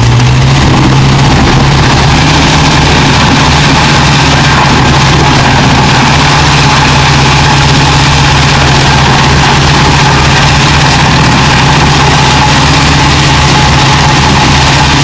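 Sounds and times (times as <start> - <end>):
large engine running steadily: 0.0 - 15.0.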